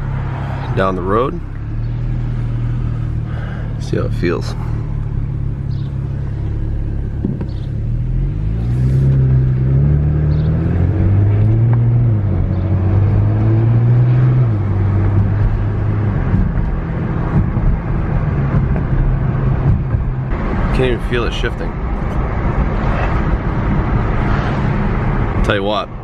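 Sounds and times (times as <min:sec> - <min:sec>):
car engine accelerating through gears: 0:00.0 - 0:20.8.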